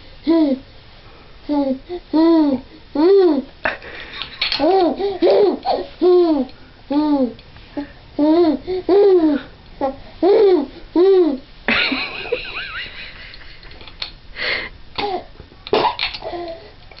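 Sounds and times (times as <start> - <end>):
baby laughing and babbling: 0.2 - 0.6, 1.5 - 3.5, 4.5 - 7.4, 8.2 - 11.4, 15.0 - 15.3.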